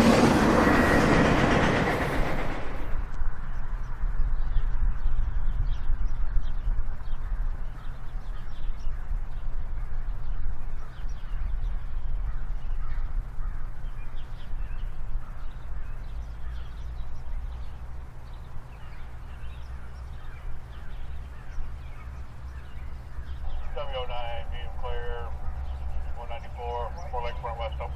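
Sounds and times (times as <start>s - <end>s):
freight train rumbling past: 0.0s - 3.8s, 16.0s - 27.9s.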